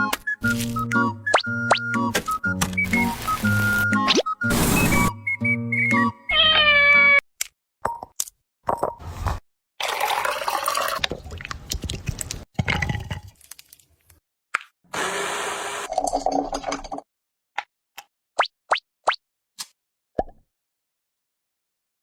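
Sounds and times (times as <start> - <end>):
liquid pouring and splashing: 9.8 - 14.0, 15.9 - 17.0.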